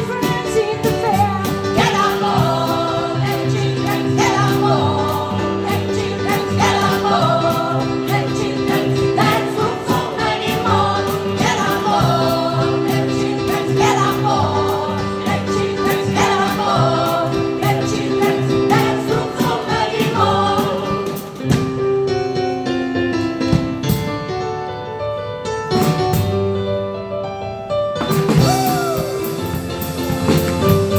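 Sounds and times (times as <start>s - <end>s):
gospel choir singing: 0.0s - 21.8s, 28.3s - 30.9s
percussive beat: 0.0s - 22.0s, 28.0s - 30.9s
instrumental accompaniment: 0.0s - 30.9s.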